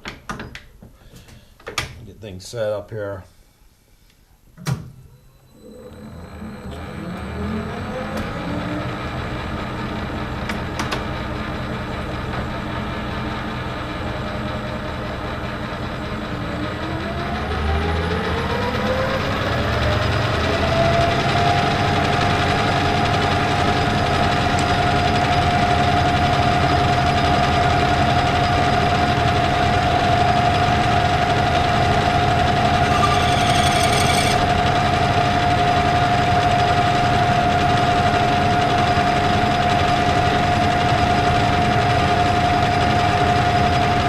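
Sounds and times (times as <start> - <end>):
metal lathe whining: 5.5 - 10.0, 20.4 - 39.5.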